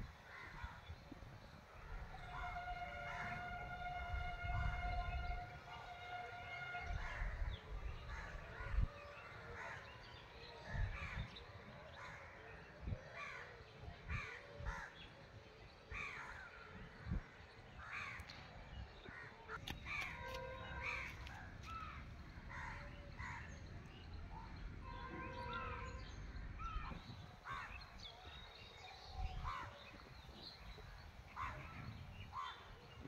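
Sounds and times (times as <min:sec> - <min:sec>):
birds calling harshly: 0:19.1 - 0:23.7.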